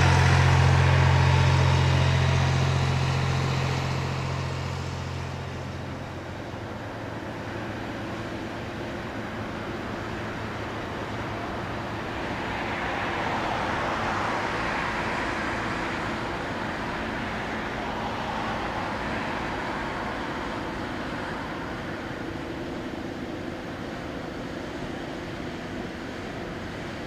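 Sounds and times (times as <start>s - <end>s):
vehicle passing by: 0.0s - 6.7s, 9.4s - 22.0s
low engine drone: 0.0s - 27.0s.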